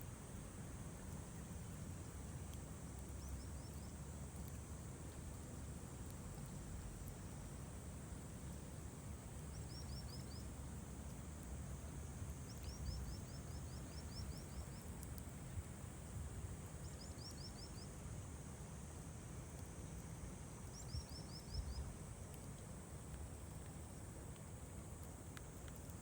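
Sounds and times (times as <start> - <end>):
faint high hiss: 0.0 - 26.0
faint clicks: 2.4 - 7.4, 9.4 - 11.6, 12.3 - 15.4, 22.1 - 26.0.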